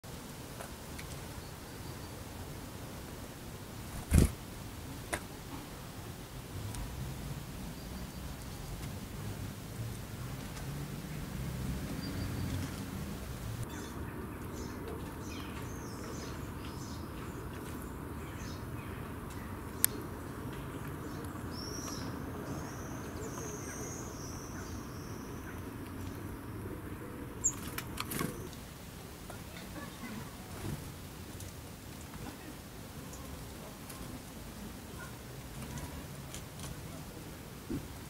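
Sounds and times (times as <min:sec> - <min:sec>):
steady low outdoor hum: 0:00.1 - 0:38.0
small birds chirping: 0:03.8 - 0:04.4, 0:10.5 - 0:28.5.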